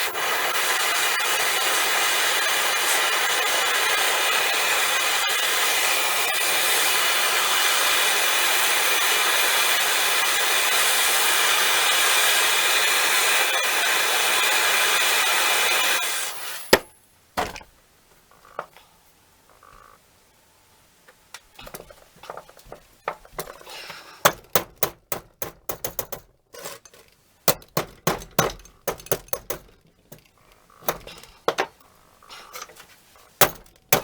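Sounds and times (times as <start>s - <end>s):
loud hissing rasp: 0.0s - 16.8s.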